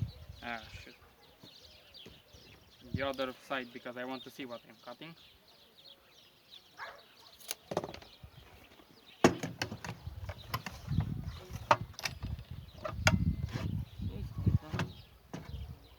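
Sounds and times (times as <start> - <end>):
sharp knocks and clicks: 9.2 - 13.3
dull thuds: 9.2 - 13.8, 14.5 - 15.7.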